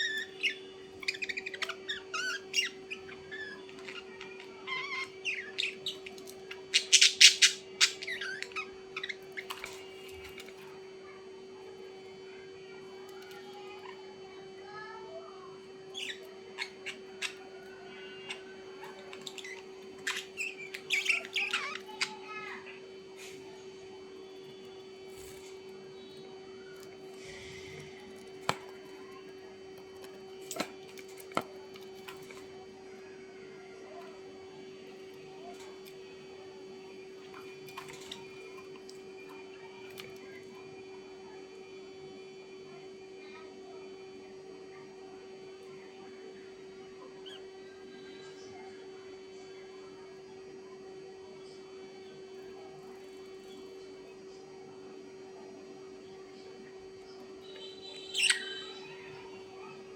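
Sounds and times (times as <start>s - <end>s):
harsh bird squawks: 0.0s - 10.1s, 15.9s - 22.8s, 57.4s - 59.7s
birds chirping: 0.0s - 11.2s, 11.9s - 41.0s, 46.4s - 49.1s, 51.3s - 59.9s
steady low hum: 0.0s - 59.9s.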